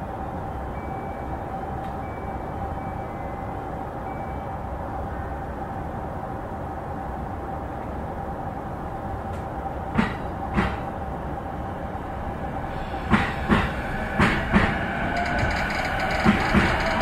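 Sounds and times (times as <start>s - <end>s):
train running noise: 0.0s - 17.0s
wheels knocking over rail joints: 13.1s - 17.0s.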